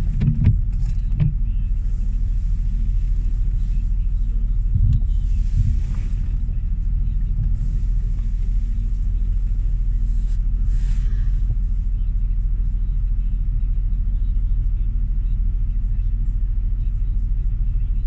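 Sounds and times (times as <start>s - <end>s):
car engine and tyres rumble: 0.0s - 18.0s.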